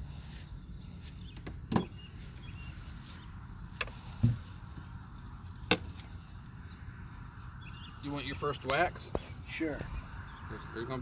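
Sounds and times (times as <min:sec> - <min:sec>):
knocks of wooden beehive equipment: 0:03.8 - 0:04.5.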